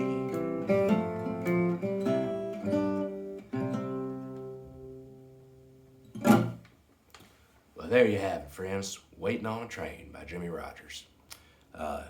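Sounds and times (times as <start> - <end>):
fingerstyle acoustic guitar: 0.0 - 6.8.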